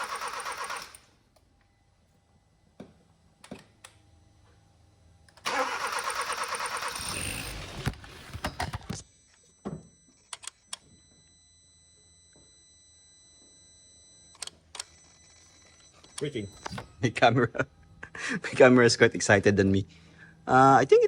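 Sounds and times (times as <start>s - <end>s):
engine starter cranking: 0.0s - 1.0s, 5.4s - 8.8s.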